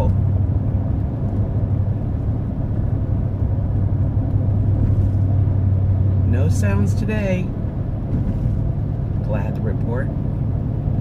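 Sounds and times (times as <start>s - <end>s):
tyre rumble on road: 0.0s - 6.2s, 7.5s - 9.0s
vehicle engine hum: 0.0s - 11.0s.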